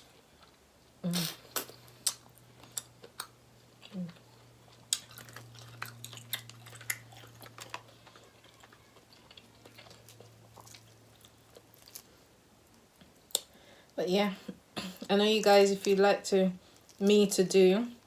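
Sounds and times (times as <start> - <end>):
faint low hum: 0.0 - 18.0
person chewing food: 1.3 - 14.0, 16.6 - 17.0.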